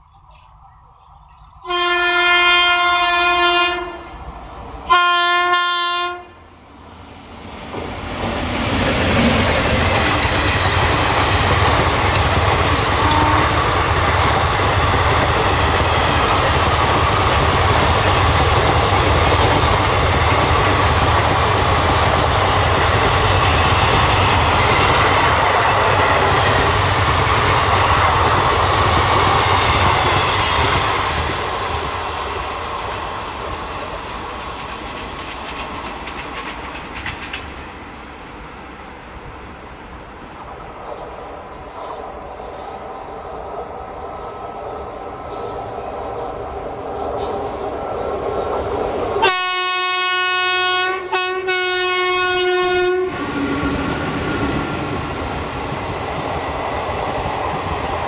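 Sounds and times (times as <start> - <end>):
train wheels on track: 0.0 - 58.0
locomotive horn blasts: 1.6 - 4.1, 4.9 - 6.4, 13.0 - 13.6, 49.2 - 53.2.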